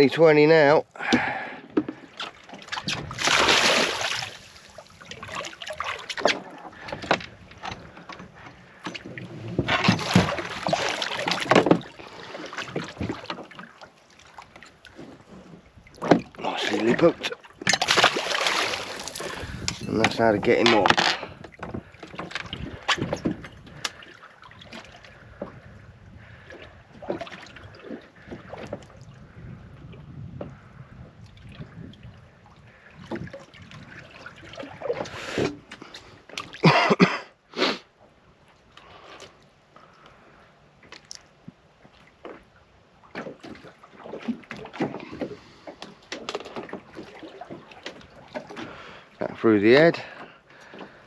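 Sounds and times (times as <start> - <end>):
water lapping against boat hull: 0.0 - 51.0
wind on microphone: 2.7 - 6.0, 18.0 - 24.0, 24.6 - 35.6.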